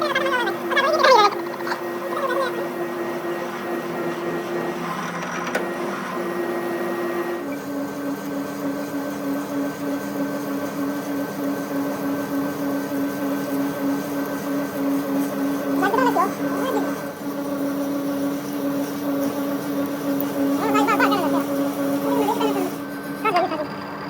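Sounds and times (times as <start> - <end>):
workshop machine humming: 0.0 - 24.0.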